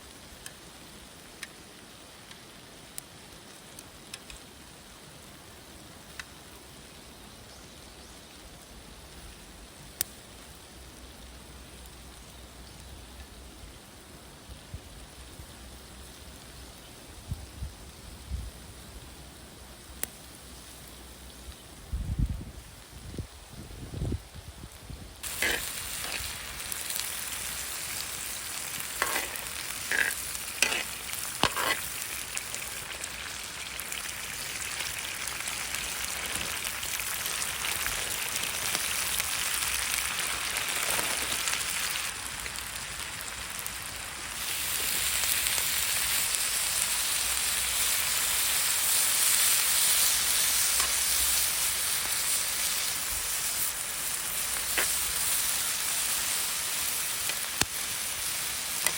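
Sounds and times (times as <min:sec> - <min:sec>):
food sizzling in frying pan: 0:22.4 - 0:58.9
utensil clicking against pan: 0:28.8 - 0:31.9.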